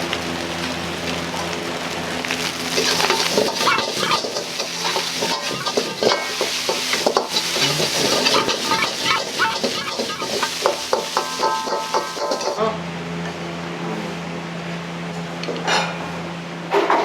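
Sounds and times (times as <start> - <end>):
food sizzling in hot oil: 0.0 - 12.6
steady hum: 2.6 - 13.1
metal ladle scraping in wok: 2.8 - 12.6.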